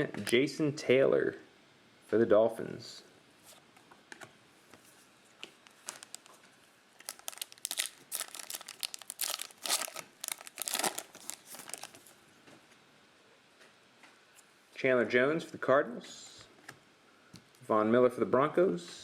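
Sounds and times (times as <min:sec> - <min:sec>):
card pack wrapper crinkling: 0:05.6 - 0:06.4, 0:07.0 - 0:12.2.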